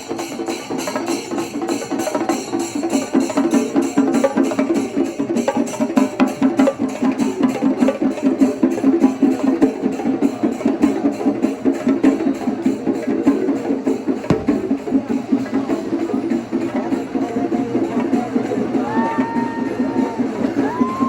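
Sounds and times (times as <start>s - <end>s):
many drums beating fast: 14.3s - 15.1s
cymbals: 14.3s - 15.5s.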